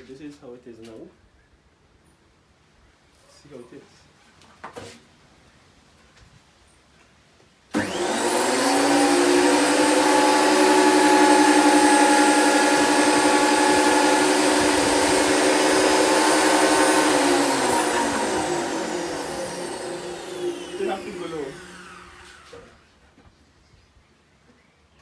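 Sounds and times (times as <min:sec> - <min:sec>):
thickness planer motor whining: 0:07.8 - 0:22.9.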